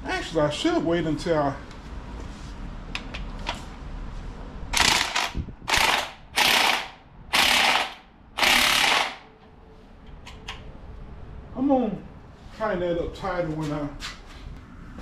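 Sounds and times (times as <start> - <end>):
ratchet wrench ratcheting: 4.8 - 9.3.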